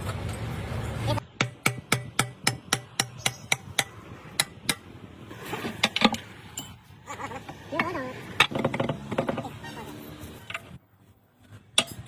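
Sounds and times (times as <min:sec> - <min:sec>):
hammer striking metal: 0:01.4 - 0:04.9.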